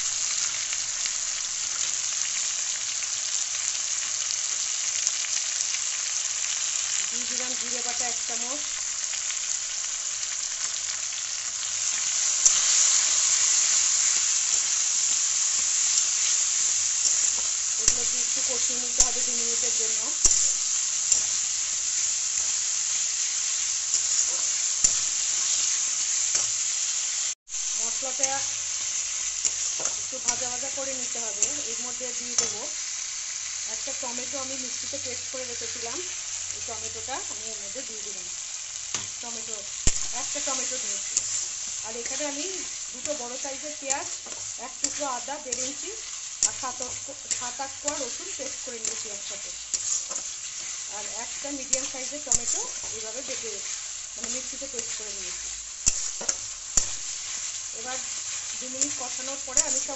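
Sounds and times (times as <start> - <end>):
paste sizzling in hot oil: 0.0 - 59.9
crackling pops: 39.8 - 59.9.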